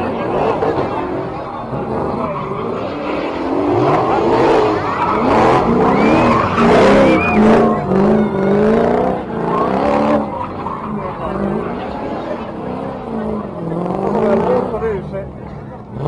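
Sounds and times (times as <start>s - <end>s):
car engine revving: 0.0s - 16.0s
tyre squeals: 2.0s - 12.5s.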